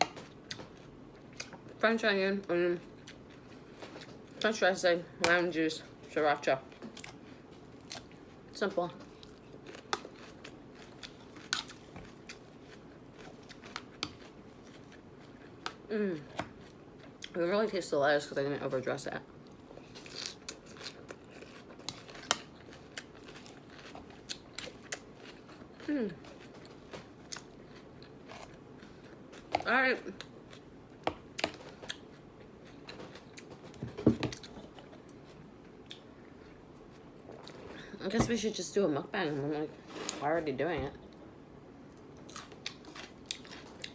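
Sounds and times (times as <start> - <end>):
crunchy chewing of lettuce: 6.8 - 17.3, 19.4 - 33.5.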